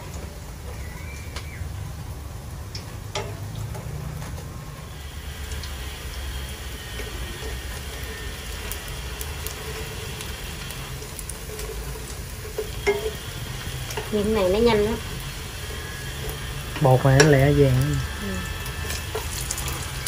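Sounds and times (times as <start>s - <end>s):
fritters sizzling in hot oil: 0.0s - 20.0s
chopsticks clicking against pan: 12.6s - 13.2s, 16.7s - 17.5s.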